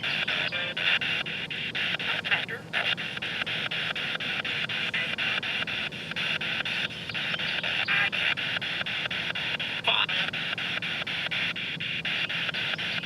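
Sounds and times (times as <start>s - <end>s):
radio static hiss: 0.0s - 13.0s
radio sweep clicks: 0.0s - 13.0s
snatches of radio sound: 0.0s - 13.0s.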